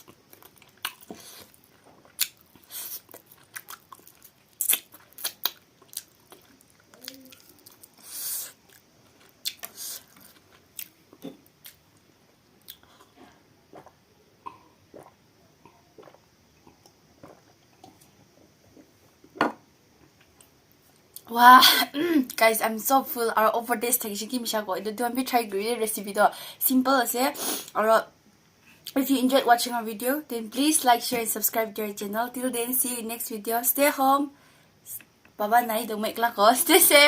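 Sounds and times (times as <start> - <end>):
chewing and crunching chicken: 0.0 - 8.0.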